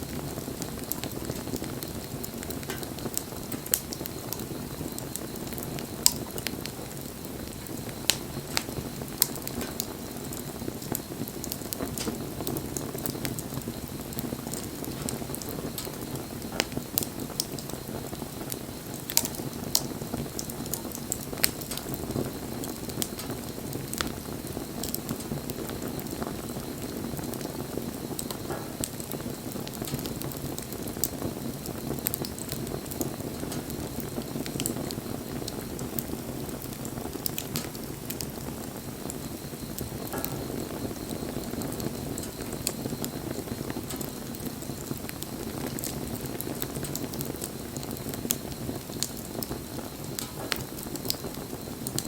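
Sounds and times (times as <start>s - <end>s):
bonfire flames rushing: 0.0s - 52.0s
burning wood crackling and popping: 0.0s - 52.0s.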